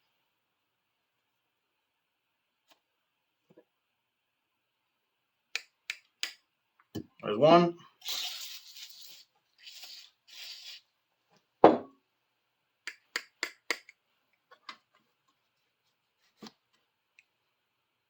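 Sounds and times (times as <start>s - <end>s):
pliers rubbing hiss: 8.0s - 10.9s.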